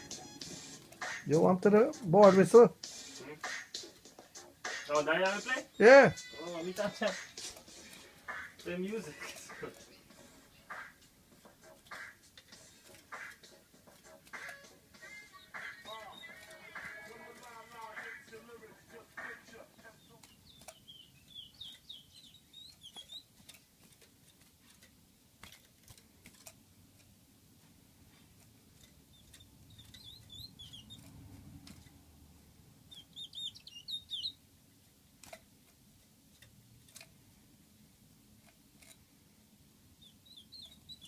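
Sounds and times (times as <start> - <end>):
small songbird chirping: 5.1 - 7.3, 14.1 - 23.6, 28.9 - 31.8, 32.8 - 34.4, 39.9 - 41.0.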